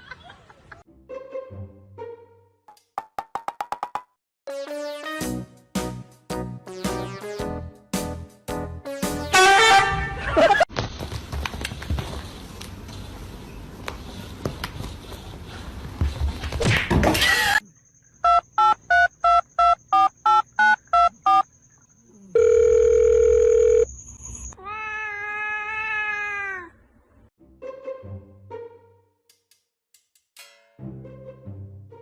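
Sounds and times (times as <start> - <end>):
short electronic beeps: 18.2 - 21.5.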